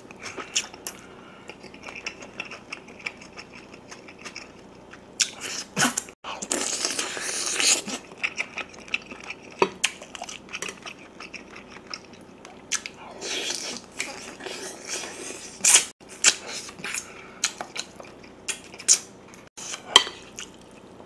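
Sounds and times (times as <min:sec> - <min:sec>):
biting and chewing meat: 0:00.0 - 0:21.0.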